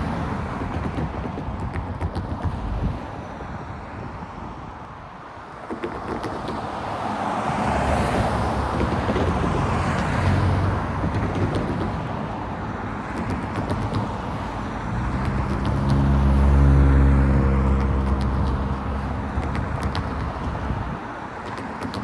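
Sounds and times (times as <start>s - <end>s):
vehicle passing by: 6.8s - 11.9s, 14.2s - 21.0s.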